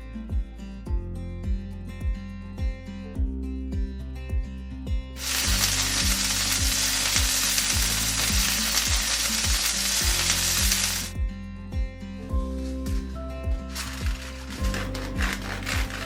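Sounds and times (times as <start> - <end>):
background music with a beat: 0.0 - 16.0
food sizzling in a frying pan: 5.2 - 11.1.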